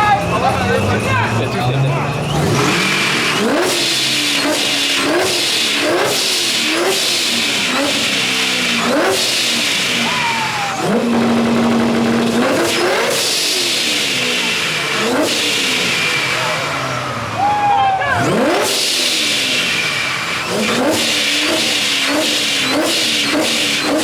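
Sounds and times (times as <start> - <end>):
car engine revving hard: 0.0 - 17.5, 18.1 - 24.0.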